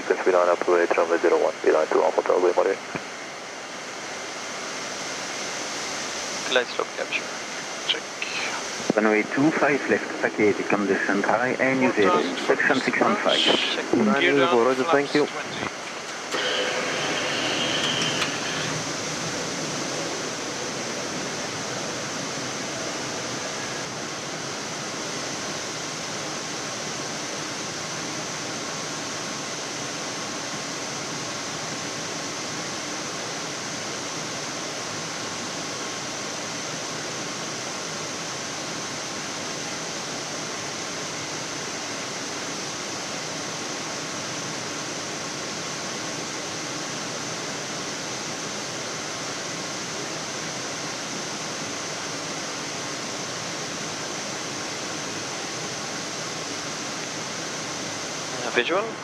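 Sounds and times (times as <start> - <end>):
faint high whine: 0.0 - 59.0
rushing hiss of airflow: 3.8 - 9.0, 15.6 - 29.6.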